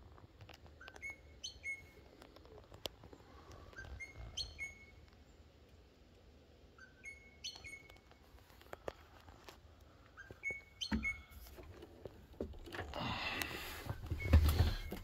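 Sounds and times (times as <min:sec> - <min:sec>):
birds chirping: 0:00.6 - 0:06.0, 0:06.6 - 0:08.2, 0:09.9 - 0:11.6.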